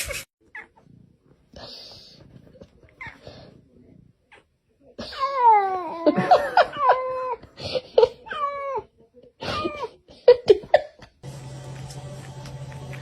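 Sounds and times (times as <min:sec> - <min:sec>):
steady music: 0:11.2 - 0:13.0.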